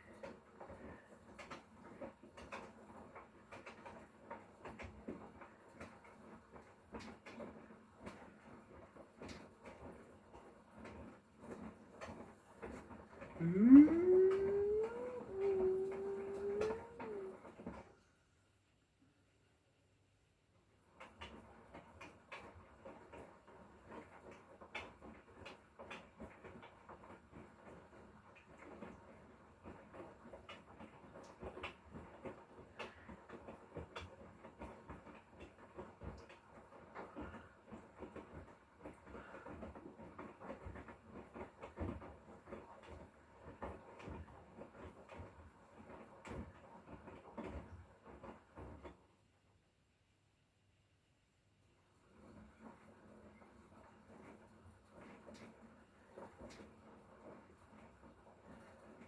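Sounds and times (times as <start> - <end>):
washing machine tumbling: 13.4 - 17.5.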